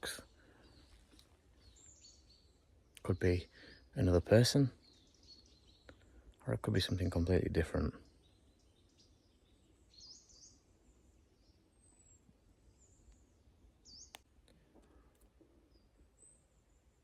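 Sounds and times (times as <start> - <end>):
faint high bird chirps: 7.9 - 14.2
faint click: 14.1 - 15.3.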